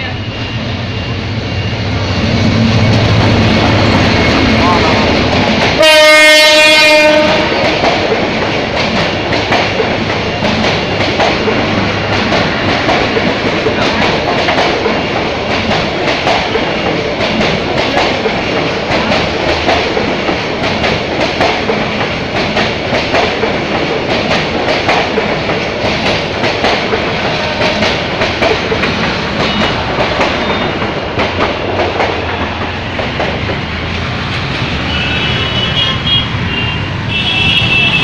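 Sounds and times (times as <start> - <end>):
train wheels clattering: 2.0 - 36.5
high-pitched vehicle horns: 5.8 - 7.6, 34.6 - 38.0.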